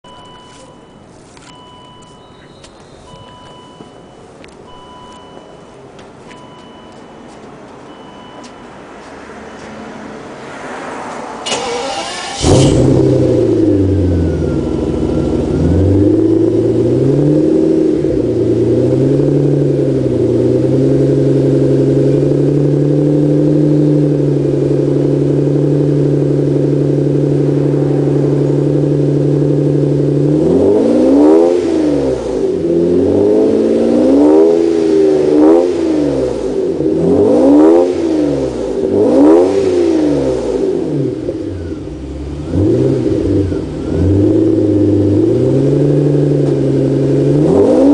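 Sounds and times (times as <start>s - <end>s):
car engine idling: 11.4s - 33.8s, 40.4s - 47.9s
engine throttle blips: 11.4s - 47.9s.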